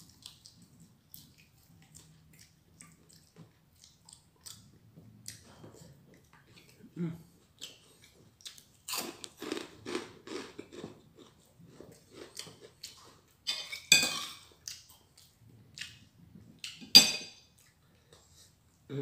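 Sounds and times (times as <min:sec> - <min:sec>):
chewing food: 0:00.0 - 0:18.8.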